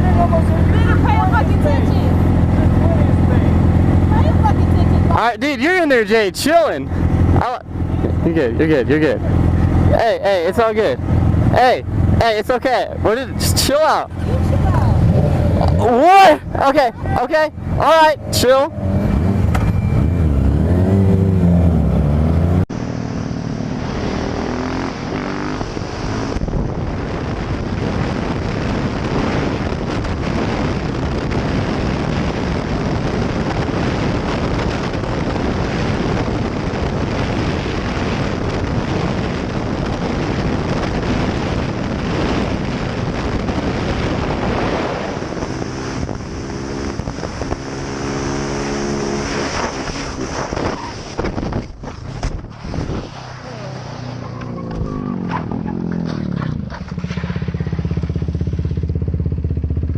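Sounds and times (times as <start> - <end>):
vehicle engine running: 0.0 - 49.3, 53.3 - 59.9
wind noise on microphone: 22.7 - 59.9.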